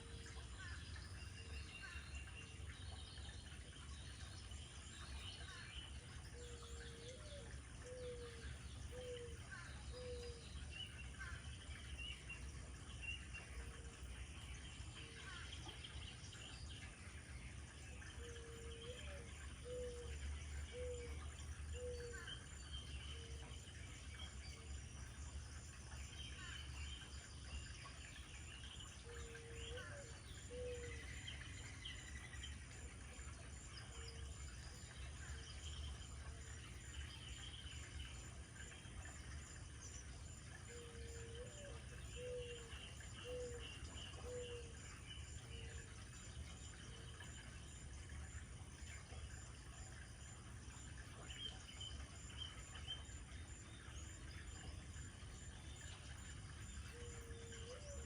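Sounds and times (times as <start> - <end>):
small birds chirping and singing: 0.0 - 58.0
dove cooing: 40.7 - 43.6, 44.2 - 44.8, 56.9 - 58.0.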